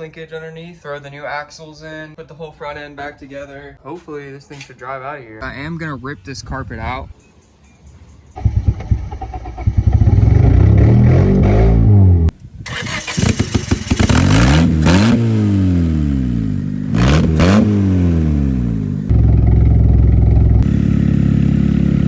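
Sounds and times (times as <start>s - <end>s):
car engine revving: 8.4s - 22.0s.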